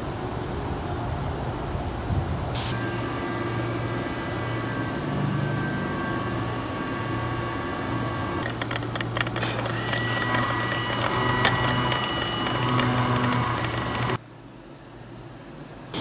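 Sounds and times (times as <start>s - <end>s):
machine motor hum and whine: 2.8s - 14.2s
brief mechanical clatter: 8.4s - 14.2s.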